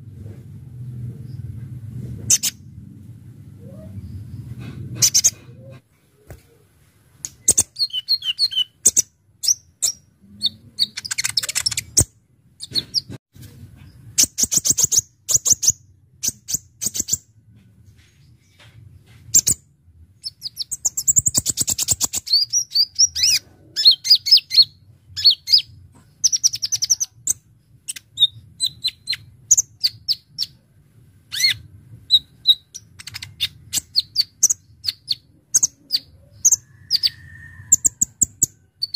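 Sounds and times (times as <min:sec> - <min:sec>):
bird chirping and trilling: 0:02.3 - 0:02.6, 0:05.0 - 0:05.4, 0:07.4 - 0:13.2, 0:20.2 - 0:30.6, 0:31.3 - 0:38.9.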